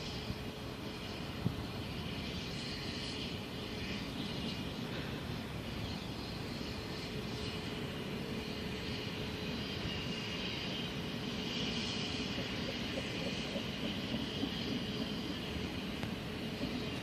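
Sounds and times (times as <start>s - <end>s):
faint steady tone: 0.0s - 17.0s
freight train wheels rumbling on rail: 0.0s - 17.0s.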